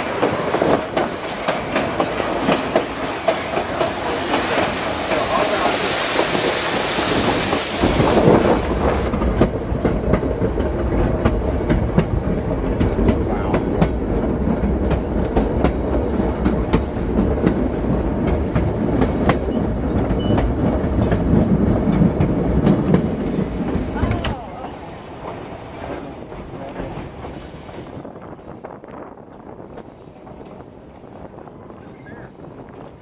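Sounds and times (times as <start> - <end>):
train wheels rumbling on rails: 0.0 - 33.0
waterfall rushing hiss: 4.1 - 9.0.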